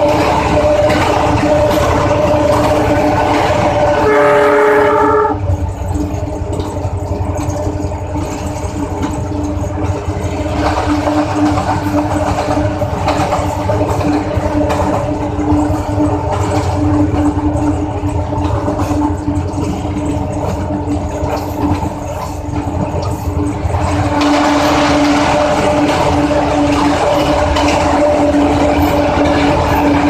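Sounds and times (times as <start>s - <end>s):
locomotive engine running: 0.0s - 30.0s
train horn blast: 3.9s - 5.5s.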